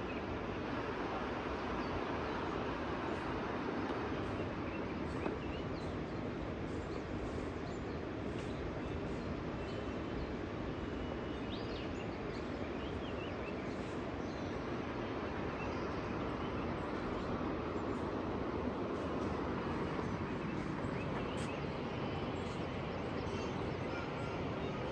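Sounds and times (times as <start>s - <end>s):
steady rushing noise: 12.0s - 24.9s
faint bird chirps: 20.1s - 24.9s.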